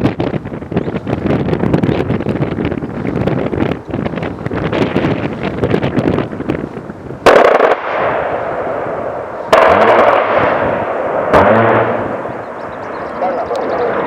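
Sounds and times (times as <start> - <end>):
rotary cannon bursts: 7.2 - 12.5
rumbling echo: 7.2 - 14.0.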